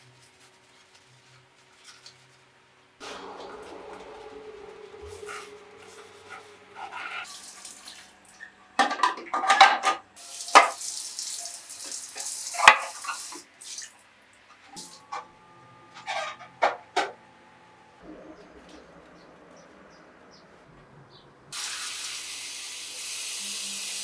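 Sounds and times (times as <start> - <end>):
dishes clattering: 8.4 - 10.8, 11.8 - 13.4, 14.6 - 17.2.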